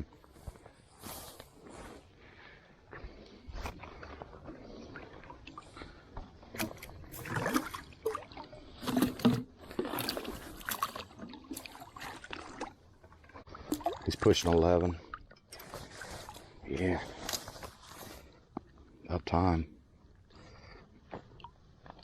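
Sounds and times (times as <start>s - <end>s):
river water splashing around legs: 6.5s - 12.8s.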